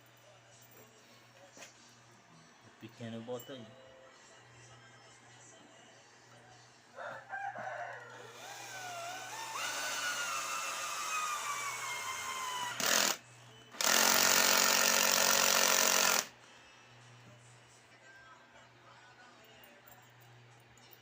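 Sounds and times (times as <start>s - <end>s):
rooster crowing: 7.0s - 9.6s
woodworking power tool: 13.8s - 16.3s.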